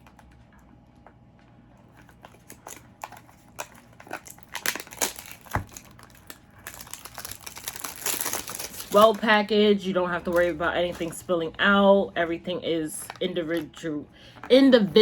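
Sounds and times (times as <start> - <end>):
plastic wrapping crinkling: 1.8 - 11.4.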